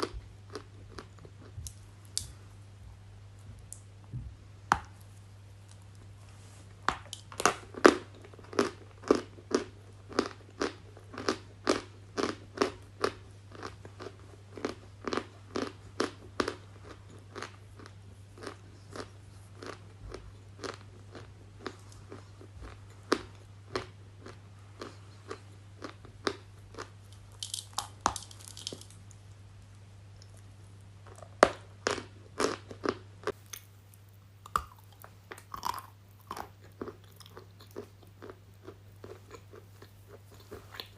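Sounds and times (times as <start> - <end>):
crunchy food being chewed: 0.0 - 2.4, 5.0 - 29.2, 30.2 - 40.9.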